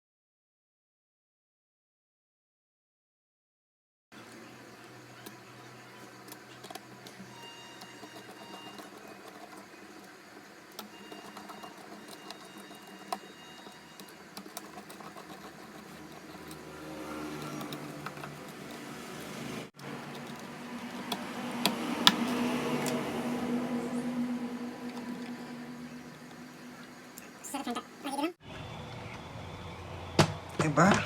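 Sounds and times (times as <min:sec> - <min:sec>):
steady low hum: 0:04.3 - 0:31.0.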